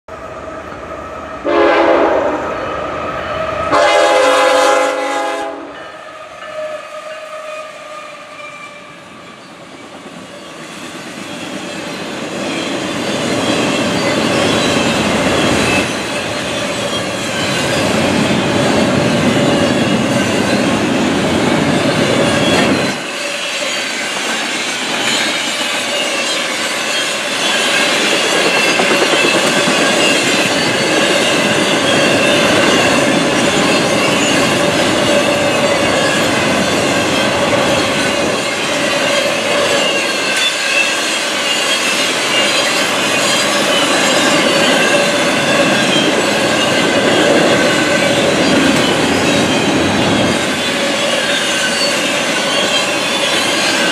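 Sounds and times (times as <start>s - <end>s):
train wheels rumbling: 0.1s - 53.9s
locomotive air horn blasts: 1.4s - 2.5s, 3.4s - 9.0s
wheels clacking over rail joints: 10.1s - 53.9s.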